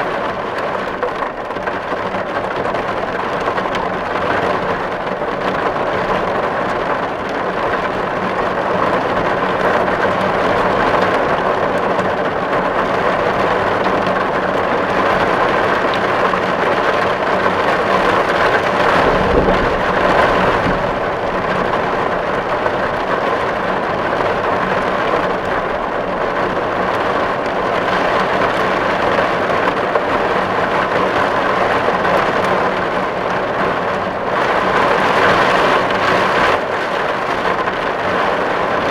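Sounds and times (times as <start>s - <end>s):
rain on a tin roof: 0.0s - 38.9s
low rumble: 17.9s - 24.4s.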